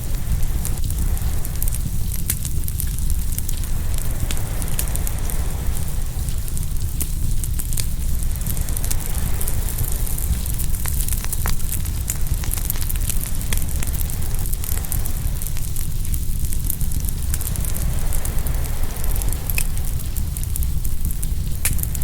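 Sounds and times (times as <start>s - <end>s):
fire crackling and popping: 0.0s - 22.0s
ocean waves washing in: 3.5s - 6.7s, 16.7s - 21.0s.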